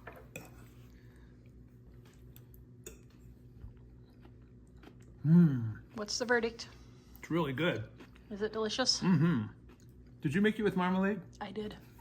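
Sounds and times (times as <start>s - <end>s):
person chewing food: 0.2s - 6.1s, 6.7s - 8.3s, 9.2s - 10.2s.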